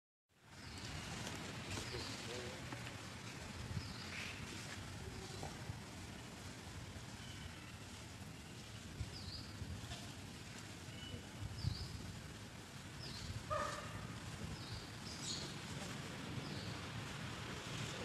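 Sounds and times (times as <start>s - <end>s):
birds chirping: 0.5s - 2.8s, 10.7s - 12.2s, 12.8s - 18.0s.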